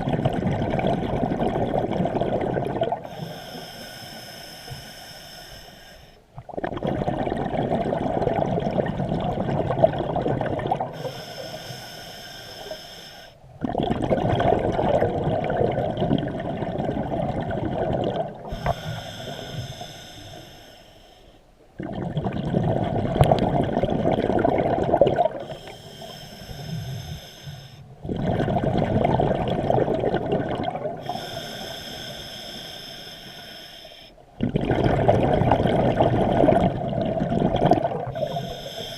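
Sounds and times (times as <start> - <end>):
exhaled bubbles rushing: 0.0 - 3.1, 6.4 - 11.0, 13.6 - 18.8, 21.8 - 25.5, 28.0 - 31.2, 34.4 - 38.6
regulator inhale hiss: 3.0 - 6.3, 10.9 - 13.4, 18.4 - 21.5, 25.4 - 27.9, 31.0 - 34.2, 38.2 - 38.9.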